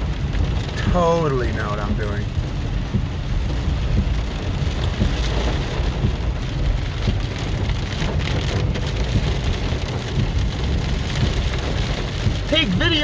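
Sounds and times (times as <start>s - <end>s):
car rumbling on wet road: 0.0s - 13.0s
heavy rain on a car: 0.0s - 13.0s.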